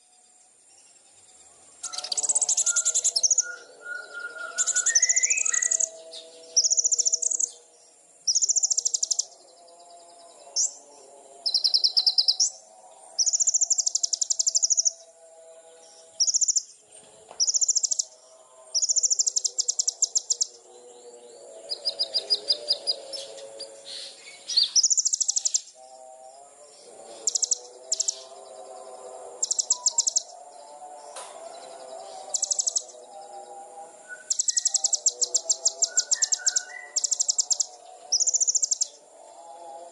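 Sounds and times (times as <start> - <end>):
lower chirping: 0.0 - 39.9
songbird trilling: 1.8 - 7.6, 8.3 - 9.3, 11.4 - 12.6, 13.2 - 15.0, 16.2 - 16.7, 17.4 - 18.2, 18.8 - 20.6, 21.6 - 25.8, 27.1 - 28.4, 29.4 - 30.4, 31.8 - 33.0, 34.1 - 39.0.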